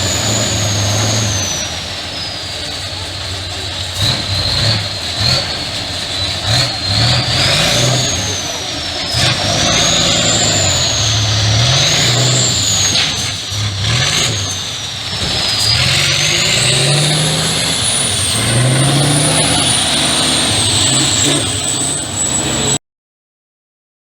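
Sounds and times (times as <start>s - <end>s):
truck engine revving: 0.0s - 22.8s
high whistle wandering in pitch: 15.4s - 22.8s.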